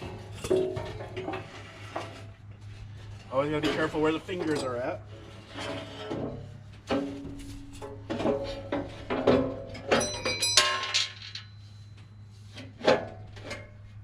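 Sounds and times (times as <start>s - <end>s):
metal parts knocking and clanking: 5.6s - 11.7s
ringing metallic clang: 9.8s - 11.9s.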